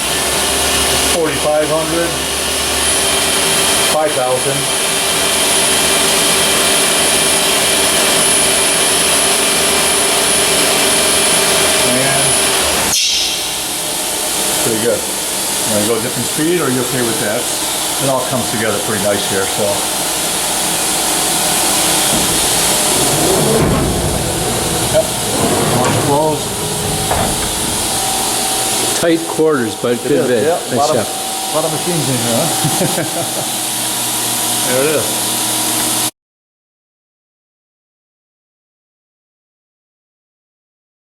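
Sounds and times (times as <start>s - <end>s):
machine spindle whirring hiss: 11.8s - 34.0s
person speaking: 29.0s - 32.6s.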